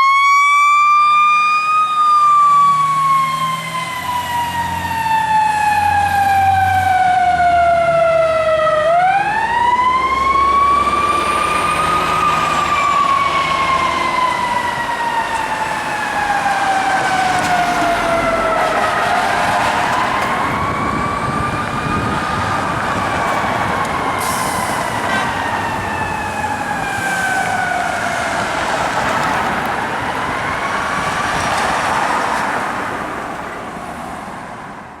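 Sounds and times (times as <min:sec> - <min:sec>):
fire truck siren wailing: 0:00.0 - 0:35.0.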